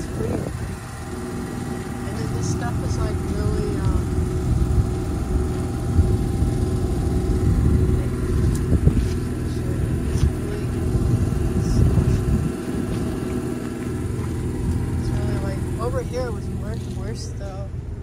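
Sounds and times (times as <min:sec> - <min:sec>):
vehicle engine idling: 0:00.0 - 0:18.0
footsteps on wet gravel: 0:12.1 - 0:15.4.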